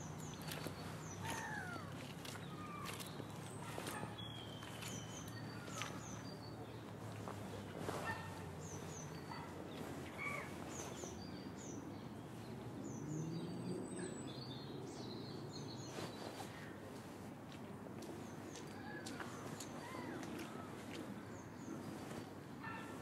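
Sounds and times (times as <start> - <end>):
small birds chirping: 0.0 - 16.8.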